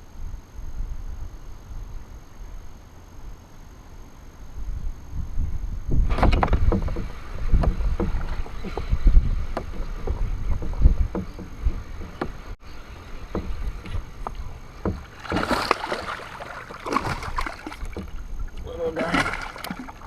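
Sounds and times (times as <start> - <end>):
knocks on a kayak: 5.9 - 12.6, 13.2 - 16.2, 16.9 - 18.2
water splash: 13.0 - 20.0.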